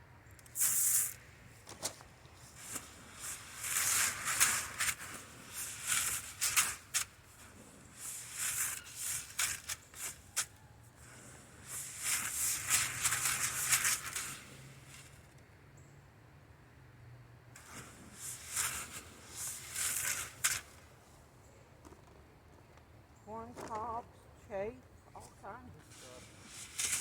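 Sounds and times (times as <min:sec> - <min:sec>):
grain clicking: 0:00.3 - 0:01.2, 0:02.4 - 0:15.2, 0:17.6 - 0:20.9, 0:25.9 - 0:27.0
grain rustling and rattling: 0:00.4 - 0:15.2, 0:17.6 - 0:21.0, 0:25.8 - 0:27.0.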